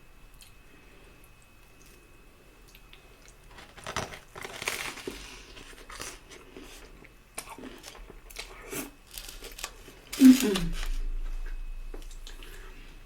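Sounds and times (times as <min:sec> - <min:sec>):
chewing and crunching: 0:02.6 - 0:13.0.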